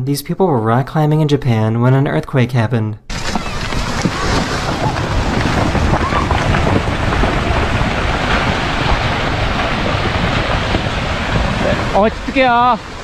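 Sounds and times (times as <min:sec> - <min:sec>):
faint voices: 0:03.1 - 0:09.1
wind buffeting microphone: 0:03.1 - 0:13.0.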